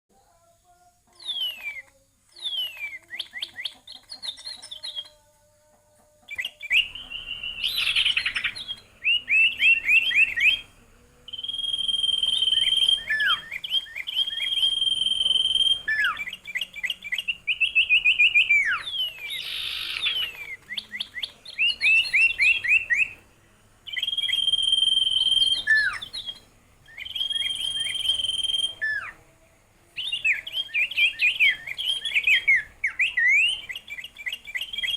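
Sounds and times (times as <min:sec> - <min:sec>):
songbird singing: 0:00.1 - 0:05.3, 0:06.3 - 0:34.9.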